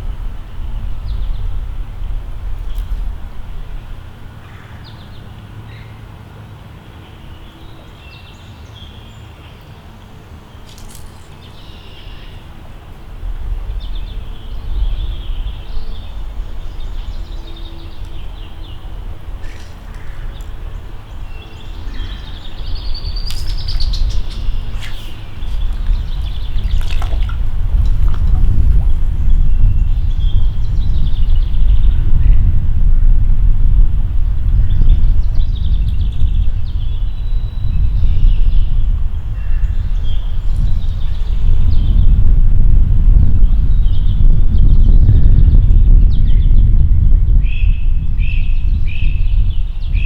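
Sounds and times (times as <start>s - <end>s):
small birds chirping: 7.0s - 12.6s, 13.8s - 32.5s
low rumble: 12.6s - 50.0s.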